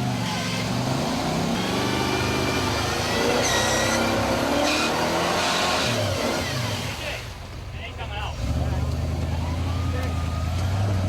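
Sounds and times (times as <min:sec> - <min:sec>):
truck engine revving: 0:00.0 - 0:11.0
brief high squeals: 0:03.2 - 0:04.2.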